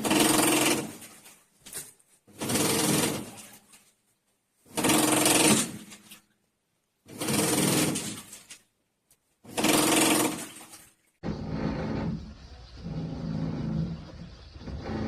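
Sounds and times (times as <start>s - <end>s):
dull steady sound: 11.2s - 15.0s.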